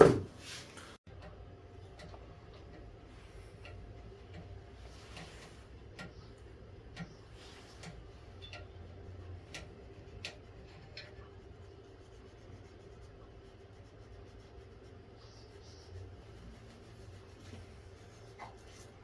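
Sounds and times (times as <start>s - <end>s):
steady low hum: 1.0s - 19.0s
soft rubbing: 9.9s - 19.0s.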